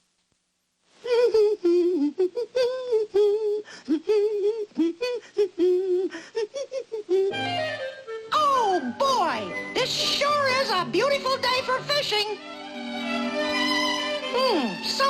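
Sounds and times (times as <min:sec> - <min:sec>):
high voice humming a tune: 0:01.0 - 0:07.5.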